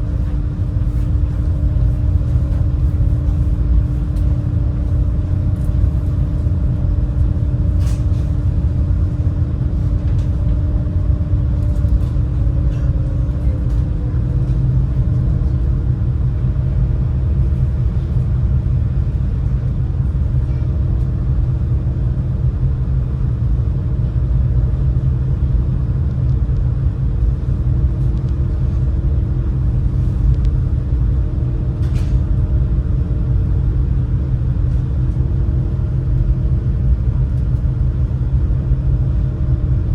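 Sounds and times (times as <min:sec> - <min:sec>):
boat engine low rumble: 0:00.0 - 0:39.9
steady hum: 0:00.0 - 0:39.9.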